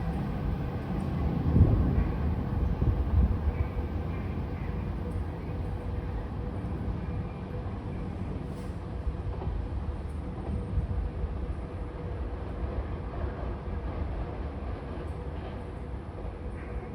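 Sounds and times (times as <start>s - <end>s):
electric train rumbling on rails: 0.0s - 16.9s.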